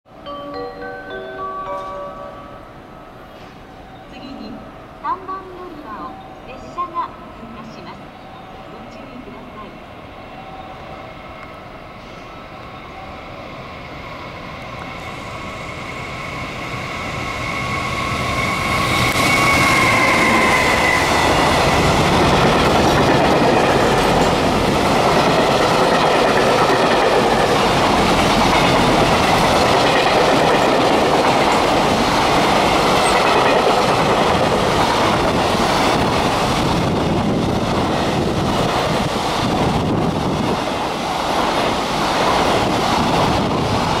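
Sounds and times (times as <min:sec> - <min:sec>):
electric locomotive whine: 0:00.1 - 0:44.0
freight wagons rumbling over rails: 0:16.8 - 0:44.0.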